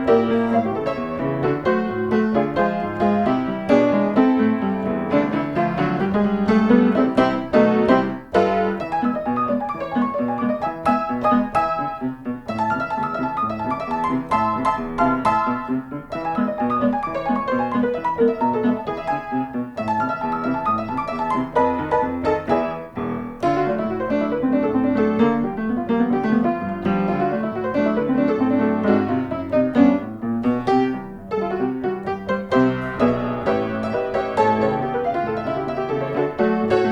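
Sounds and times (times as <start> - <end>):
piano music: 0.0 - 36.9.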